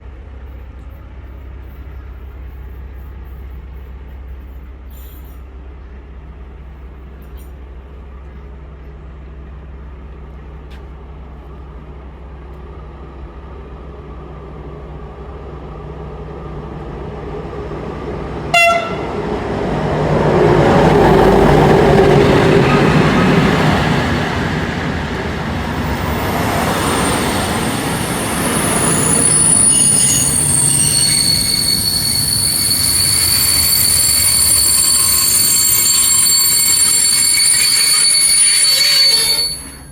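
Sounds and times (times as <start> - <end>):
wheels rumbling on rail: 0.0 - 39.9
train horn blast: 18.5 - 19.4
high-pitched wheel squealing: 20.6 - 39.9.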